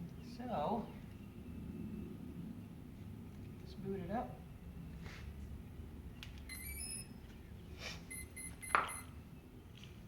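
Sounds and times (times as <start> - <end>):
drone electronic beeps: 6.5 - 7.2, 8.1 - 9.2.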